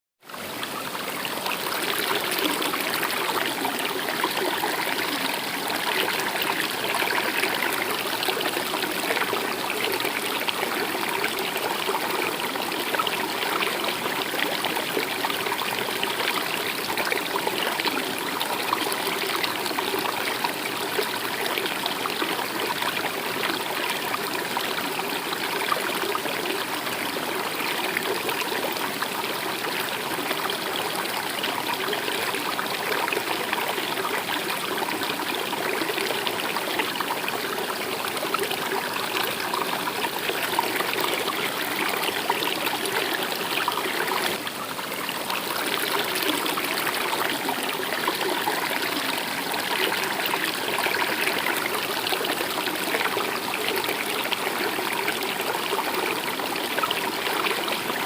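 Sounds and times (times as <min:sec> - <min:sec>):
stream water trickling: 0:00.2 - 0:58.0.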